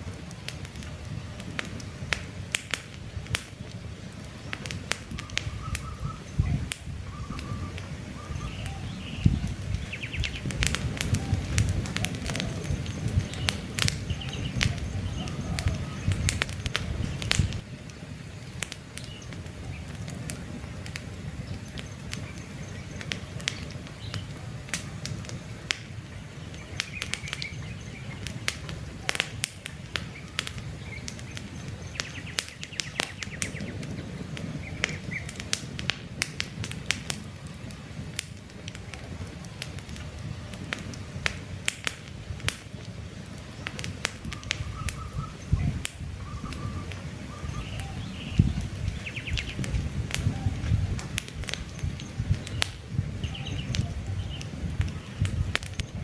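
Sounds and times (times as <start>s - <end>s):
campfire crackling and popping: 0.0s - 56.0s
low rush of burning: 0.0s - 56.0s
birds chirping faintly: 4.0s - 35.6s, 42.6s - 56.0s.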